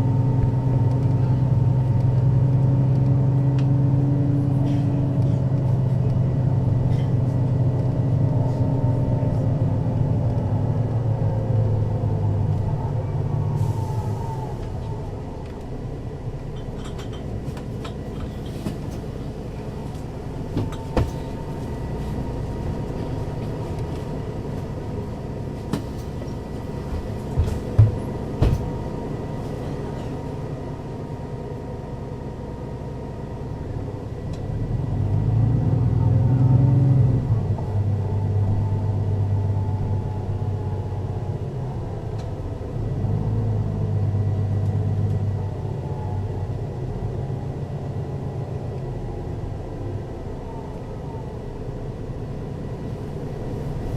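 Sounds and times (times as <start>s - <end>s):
bus engine running: 0.0s - 53.9s.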